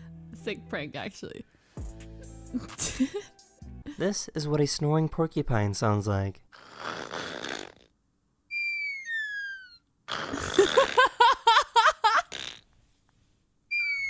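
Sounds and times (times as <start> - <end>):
porcupine snoring: 6.6 - 7.9
high whistle-like squeaks: 8.5 - 9.8, 13.7 - 14.0
quick rising squeaky notes: 8.5 - 9.8, 13.7 - 14.0.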